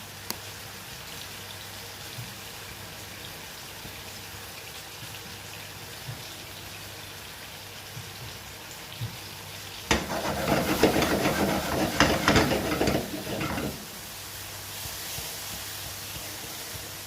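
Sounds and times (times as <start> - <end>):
mushrooms sizzling in a pan: 6.4 - 17.0
utensil scraping a pan: 9.9 - 14.1.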